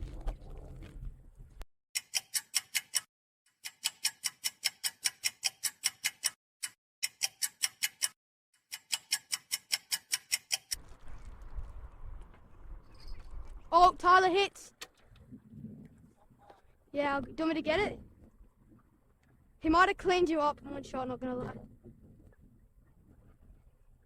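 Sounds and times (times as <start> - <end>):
rapid clock-like ticking: 2.0 - 10.8.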